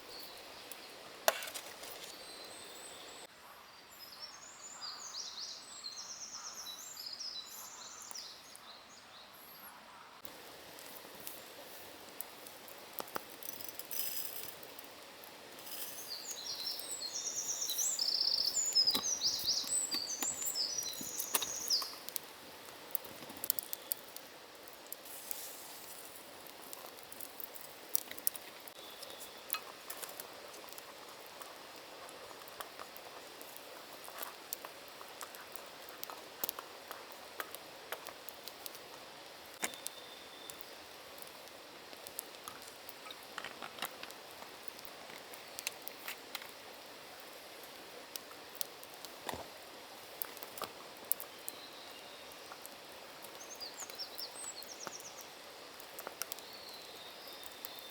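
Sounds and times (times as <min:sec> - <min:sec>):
faint forest ambience hiss: 0:00.0 - 0:57.9
small clicks and ticks: 0:10.2 - 0:16.0, 0:18.7 - 0:57.9.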